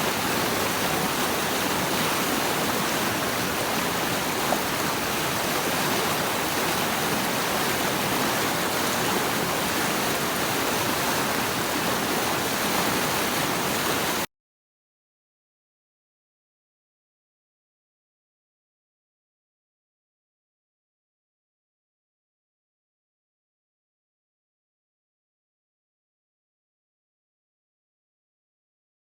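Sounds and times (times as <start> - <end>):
flowing water rushing: 0.0 - 14.3.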